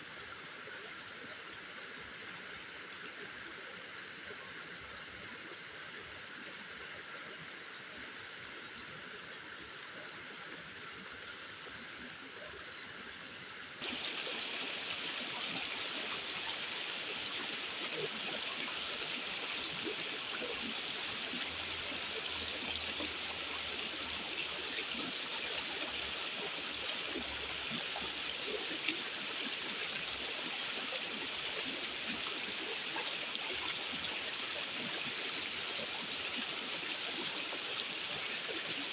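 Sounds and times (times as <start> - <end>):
rushing water: 13.8 - 38.9.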